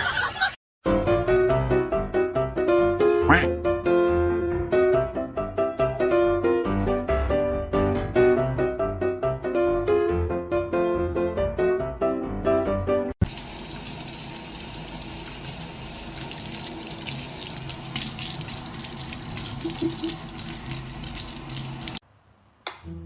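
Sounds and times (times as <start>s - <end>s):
piano music: 0.9s - 13.2s
water running from a tap: 13.2s - 22.0s.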